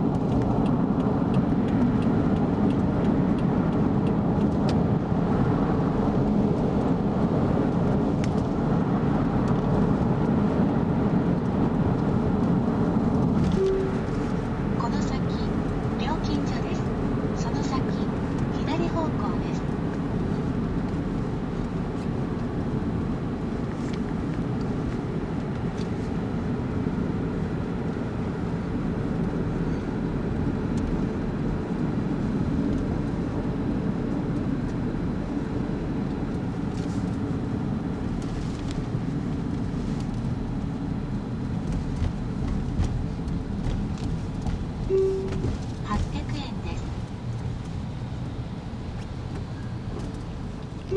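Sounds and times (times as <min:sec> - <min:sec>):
car road and engine noise: 0:00.0 - 0:50.9.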